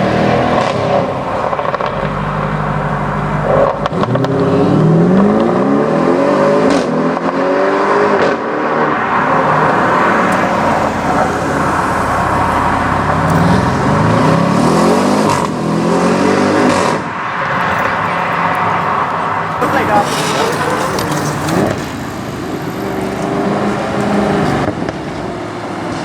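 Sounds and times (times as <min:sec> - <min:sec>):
car engine accelerating: 0:00.0 - 0:26.0
exhaust cracks: 0:00.0 - 0:26.0.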